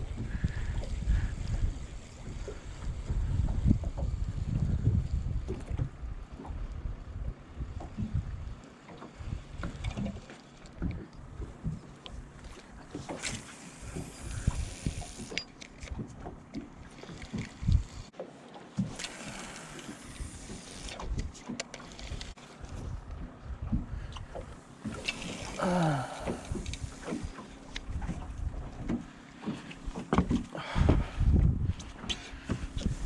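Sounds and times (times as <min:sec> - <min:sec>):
wind buffeting microphone: 0:00.0 - 0:08.6, 0:13.8 - 0:15.2, 0:22.1 - 0:24.6, 0:25.6 - 0:29.0, 0:29.9 - 0:33.0
small clicks and knocks: 0:08.9 - 0:22.4.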